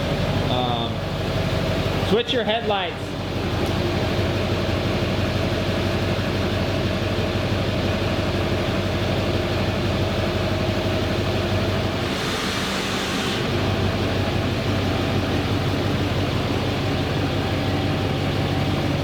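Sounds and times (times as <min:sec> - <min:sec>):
truck engine idling: 0:00.0 - 0:19.0
hiss rush: 0:12.0 - 0:13.6.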